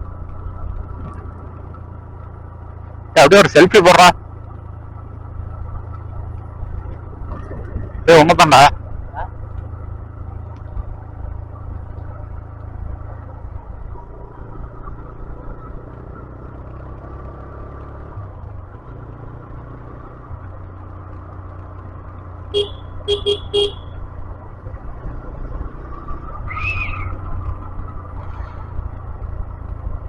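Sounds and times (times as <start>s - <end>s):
motorcycle engine rumble: 0.0s - 30.0s
horn beeps: 22.5s - 24.0s.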